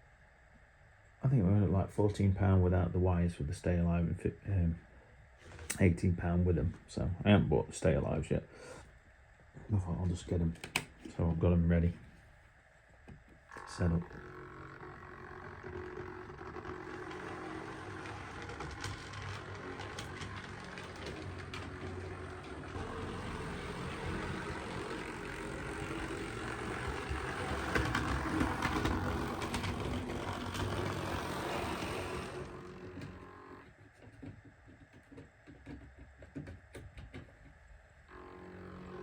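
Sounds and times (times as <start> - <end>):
model train motor rumble: 13.5 - 33.8, 38.1 - 39.0.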